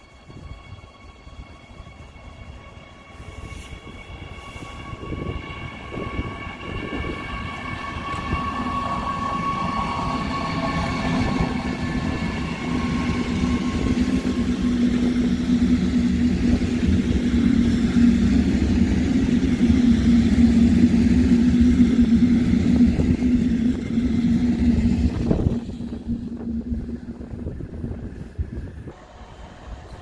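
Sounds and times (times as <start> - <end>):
high whine: 0.0 - 30.0
train passing: 0.0 - 30.0
low hum: 5.0 - 30.0.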